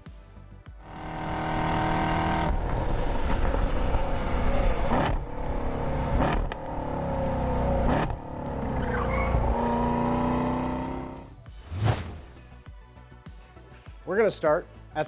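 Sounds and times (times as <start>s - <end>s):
car engine revving: 0.8s - 12.4s.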